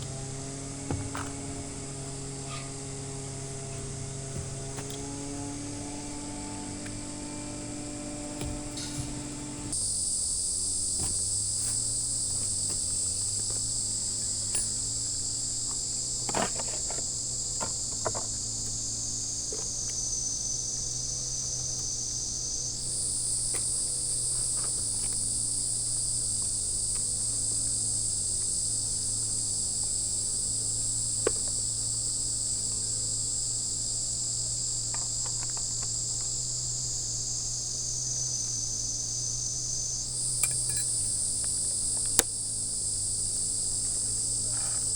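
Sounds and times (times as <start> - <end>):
shrill insect chorus: 0.0 - 44.9
low steady hum: 39.8 - 44.9.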